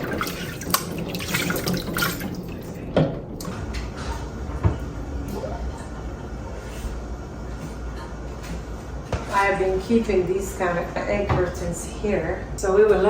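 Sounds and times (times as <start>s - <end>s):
tap water running into sink: 0.0s - 2.8s.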